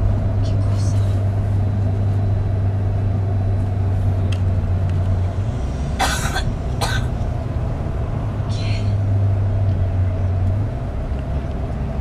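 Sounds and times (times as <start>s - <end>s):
coach engine droning: 0.0s - 12.0s
short harsh cough: 6.0s - 7.2s.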